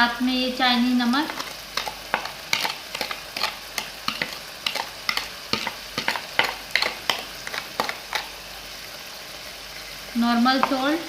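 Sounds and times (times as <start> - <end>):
food sizzling in a pan: 0.0 - 11.0
spatula scraping a pan: 1.3 - 8.4.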